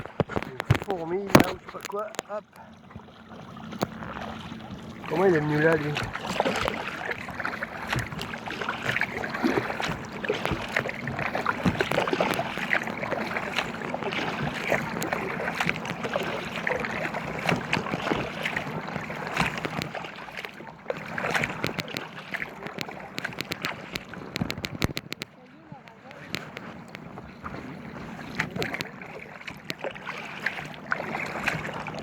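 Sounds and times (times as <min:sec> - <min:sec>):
water splashing around kayak: 0:00.0 - 0:32.0
wind: 0:00.0 - 0:32.0.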